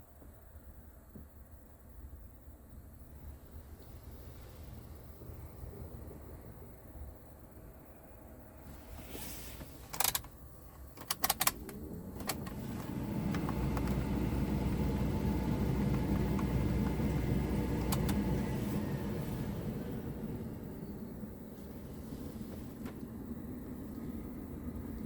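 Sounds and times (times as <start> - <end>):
diesel engine cranking and starting: 8.8 - 24.9
sharp clicks: 9.9 - 14.1, 17.8 - 18.3.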